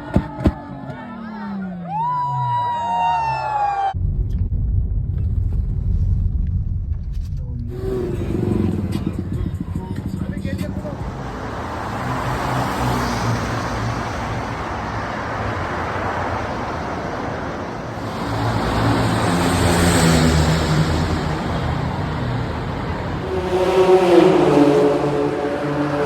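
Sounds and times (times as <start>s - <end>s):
road and traffic noise: 0.0s - 3.9s, 7.2s - 26.0s
car engines running: 0.0s - 26.0s.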